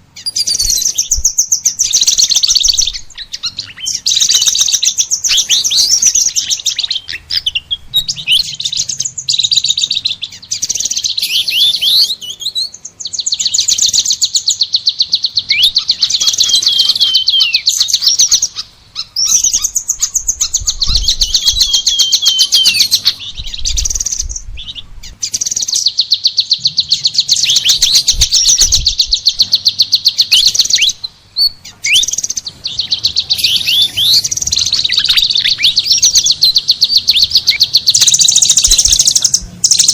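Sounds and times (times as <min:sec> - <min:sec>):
sunbird rapid high trilling: 0:00.0 - 0:39.9.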